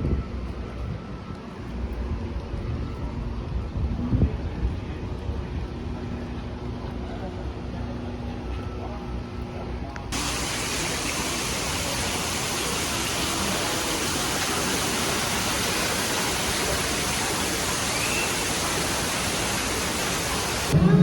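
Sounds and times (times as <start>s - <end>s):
waterfall rushing: 10.2s - 21.0s.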